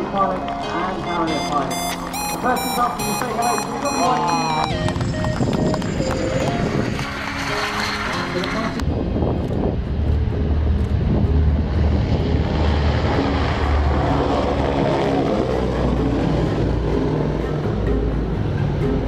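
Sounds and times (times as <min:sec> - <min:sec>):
jet aircraft flying past: 0:10.2 - 0:17.6.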